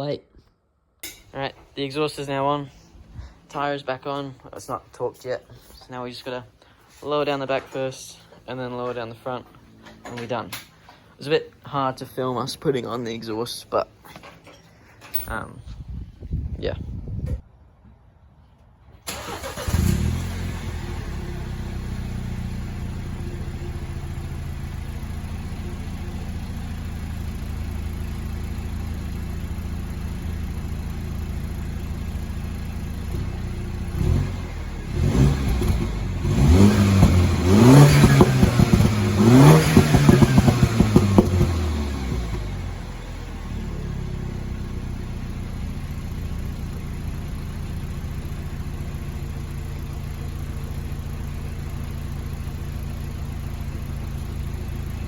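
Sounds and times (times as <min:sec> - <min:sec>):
car engine idling and revving: 0:19.1 - 0:55.0.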